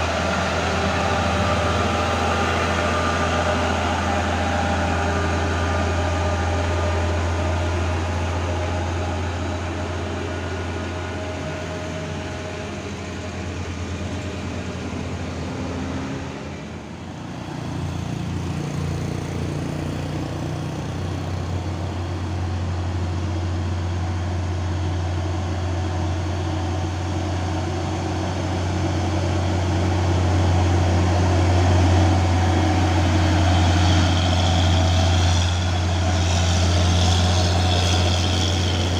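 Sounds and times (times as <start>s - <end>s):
heavy truck engines droning: 0.0s - 38.9s.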